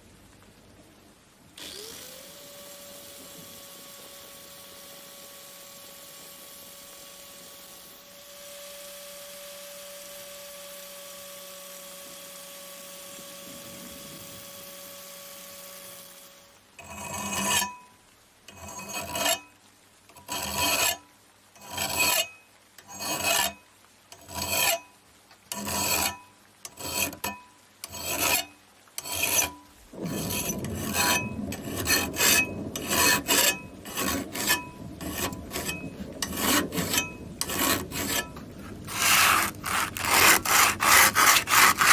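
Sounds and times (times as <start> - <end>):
steady hiss: 0.0 - 41.9
file rasping on a knife blade: 13.9 - 17.8, 18.5 - 19.5, 20.1 - 21.0, 21.6 - 23.6, 24.2 - 24.9, 25.5 - 41.9.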